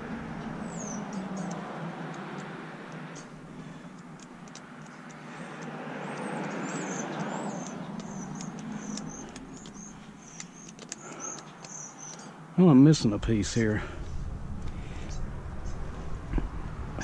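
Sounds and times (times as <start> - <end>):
vehicle passing: 0.0 - 17.0
light clicks: 1.1 - 12.3.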